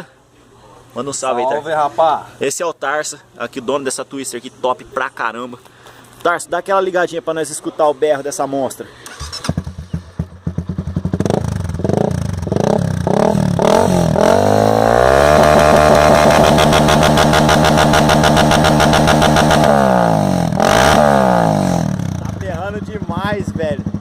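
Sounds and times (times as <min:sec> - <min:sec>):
motorcycle engine revving: 0:09.1 - 0:24.0.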